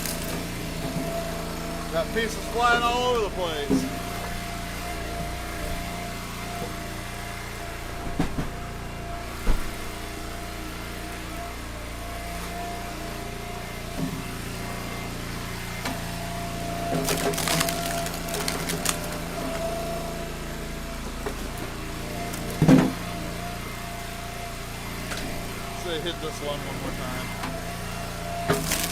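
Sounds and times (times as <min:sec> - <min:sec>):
wood cracking and splintering: 0:00.0 - 0:02.0, 0:16.9 - 0:19.6, 0:28.4 - 0:28.9
log splitter engine running: 0:00.0 - 0:28.9.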